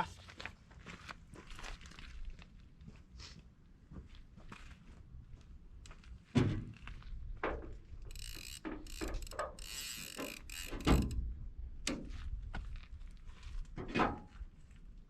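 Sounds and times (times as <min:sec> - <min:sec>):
fishing reel ratcheting whir: 0:08.0 - 0:11.2.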